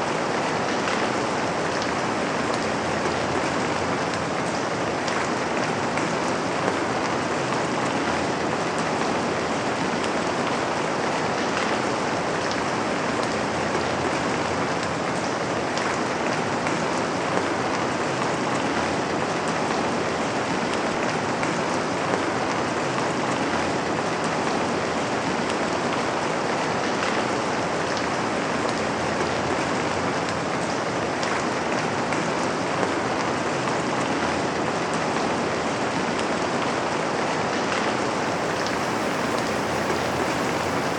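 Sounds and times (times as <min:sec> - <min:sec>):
rain on a window pane: 0:37.7 - 0:40.9.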